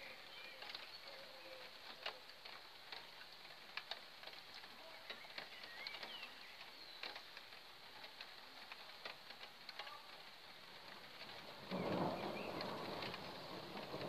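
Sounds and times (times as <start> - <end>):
raindrops pattering: 0.0 - 14.0
bird chirps: 5.1 - 7.1, 11.7 - 12.8.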